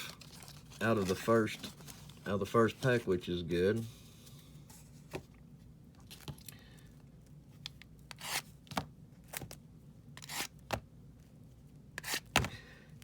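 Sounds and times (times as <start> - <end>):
wrappers crinkling: 0.0 - 3.0.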